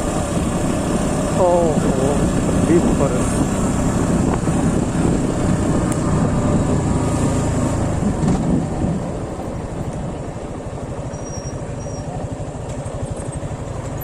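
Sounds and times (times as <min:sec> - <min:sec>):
wind noise: 0:00.0 - 0:10.5
motorcycle engine: 0:00.0 - 0:14.0.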